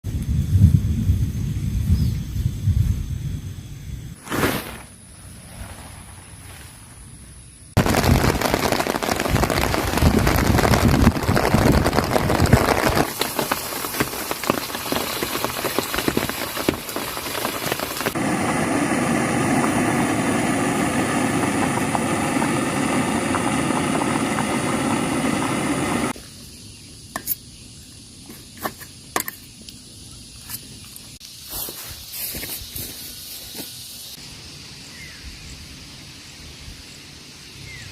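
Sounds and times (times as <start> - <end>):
heavy rain on a tent: 7.8 - 26.1.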